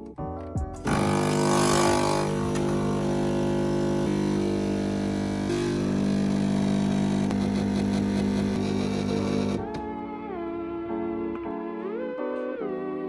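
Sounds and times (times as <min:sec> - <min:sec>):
electric motor humming: 0:00.9 - 0:09.8.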